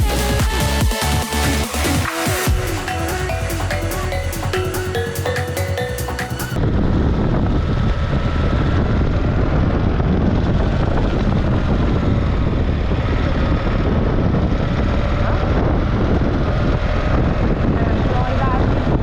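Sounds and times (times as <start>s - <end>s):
motorcycle engine drone: 0.0s - 19.0s
wind rush: 6.6s - 19.0s.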